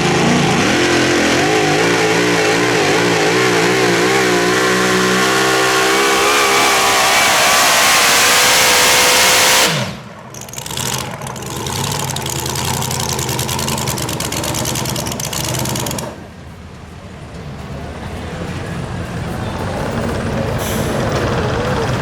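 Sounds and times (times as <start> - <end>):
truck engine at full throttle: 0.0 - 16.6, 19.2 - 22.0
rough pulsing engine rumble: 0.0 - 16.7.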